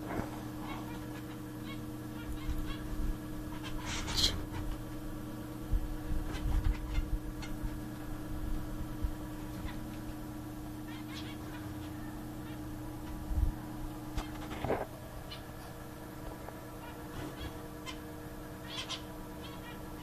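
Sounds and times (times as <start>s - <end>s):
steady low hum: 0.0s - 20.0s
finches calling: 0.5s - 4.6s, 6.3s - 7.8s, 10.8s - 12.8s, 16.8s - 20.0s.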